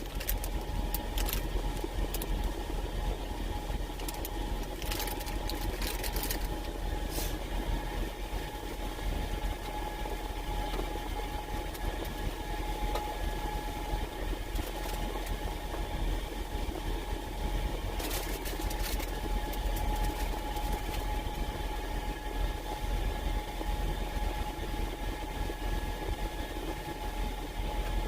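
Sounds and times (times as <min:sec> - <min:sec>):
clicks and rustles: 0:00.0 - 0:02.6, 0:04.0 - 0:06.8, 0:18.0 - 0:21.0.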